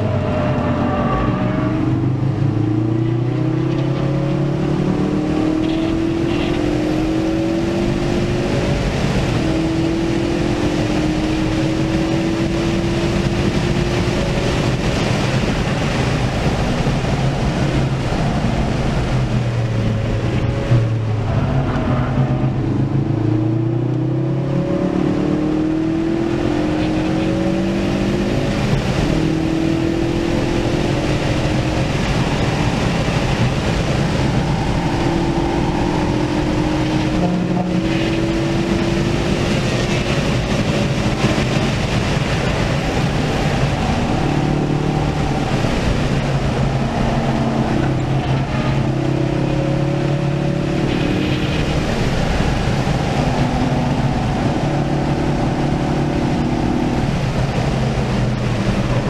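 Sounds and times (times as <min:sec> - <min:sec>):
car engine at full throttle: 0:00.0 - 0:59.0
wind and tyre noise: 0:00.0 - 0:59.0.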